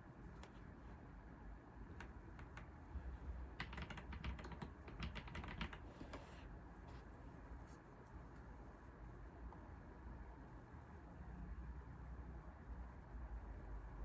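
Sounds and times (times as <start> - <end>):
typing on computer keyboard: 2.0 - 2.7, 3.6 - 6.1.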